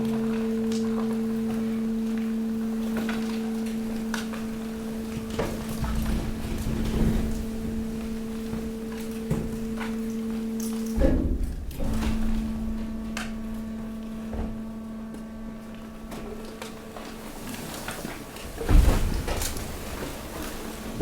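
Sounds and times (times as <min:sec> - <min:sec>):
hydraulic pump humming: 0:00.0 - 0:21.0
heavy thump: 0:11.0 - 0:13.0.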